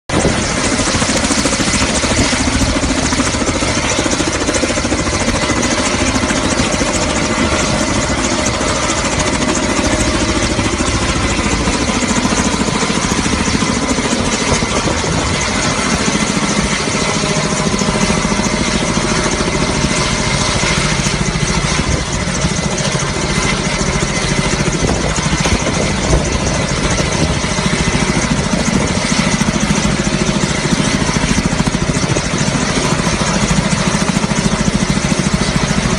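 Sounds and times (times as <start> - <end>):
helicopter engines and rotors: 0.0 - 35.9.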